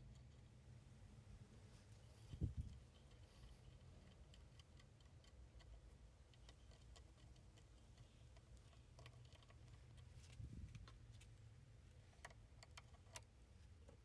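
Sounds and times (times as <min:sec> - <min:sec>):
faint light clicks and ticks: 0:02.2 - 0:14.0.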